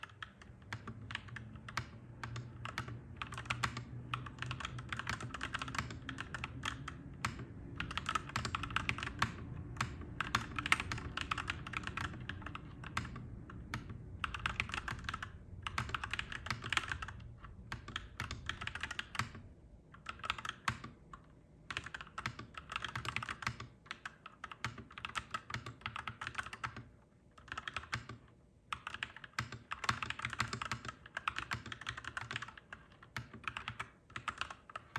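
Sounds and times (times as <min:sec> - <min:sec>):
mechanical keyboard typing: 0:00.0 - 0:34.9
low rumble: 0:08.9 - 0:19.8.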